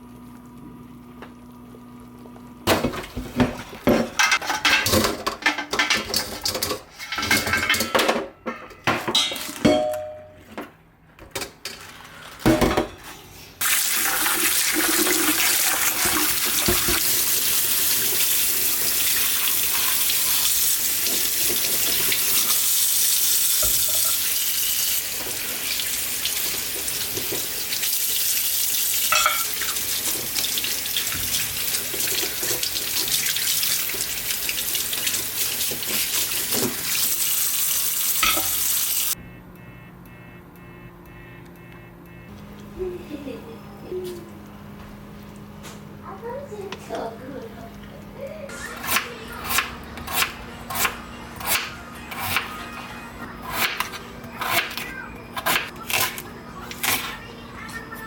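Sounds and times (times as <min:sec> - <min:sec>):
tap running into sink: 0:15.8 - 0:17.4.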